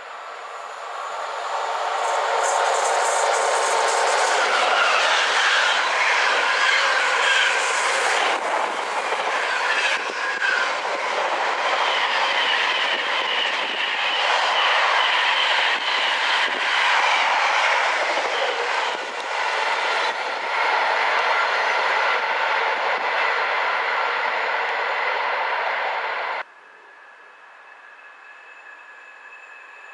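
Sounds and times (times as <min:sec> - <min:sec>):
train wagons rolling on rails: 0:00.6 - 0:24.5.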